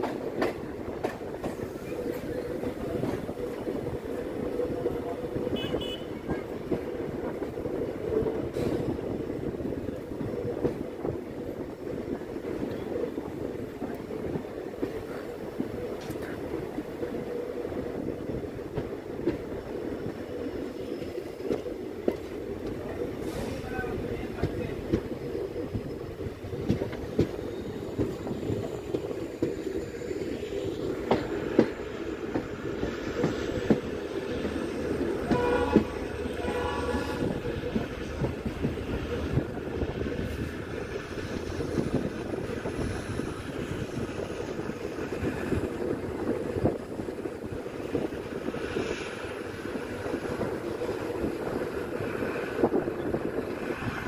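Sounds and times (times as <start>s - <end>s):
train rumbling on track: 0.0s - 54.0s
train horn blasts: 5.5s - 6.2s, 35.3s - 37.4s.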